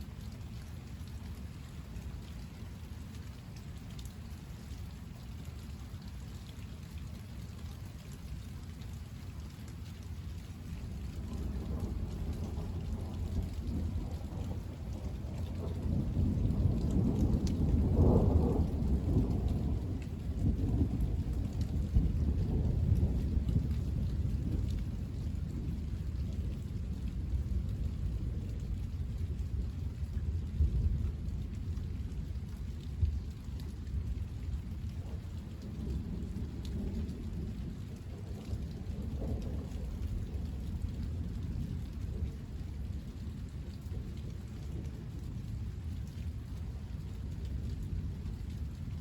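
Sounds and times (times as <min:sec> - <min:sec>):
steady rain: 0:00.0 - 0:49.0
rolling thunder: 0:10.8 - 0:33.3, 0:35.0 - 0:45.7.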